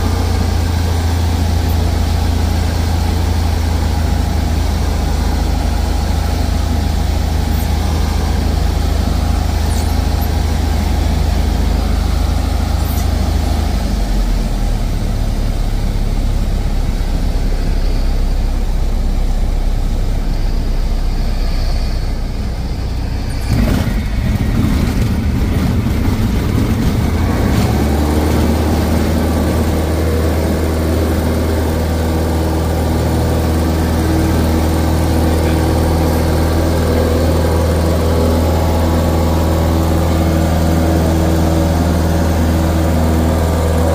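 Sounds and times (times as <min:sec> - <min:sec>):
air noise: 0:00.0 - 0:43.9
propeller plane engine droning: 0:00.0 - 0:43.9
short rattle: 0:12.6 - 0:13.5.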